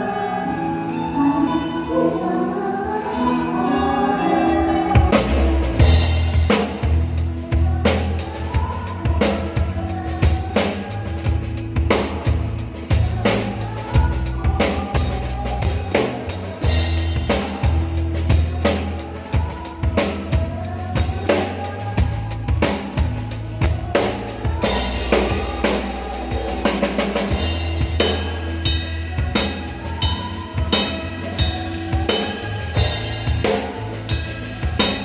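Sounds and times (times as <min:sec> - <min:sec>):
sustained bass notes: 0:03.4 - 0:35.0
drum kit beat: 0:04.9 - 0:35.0.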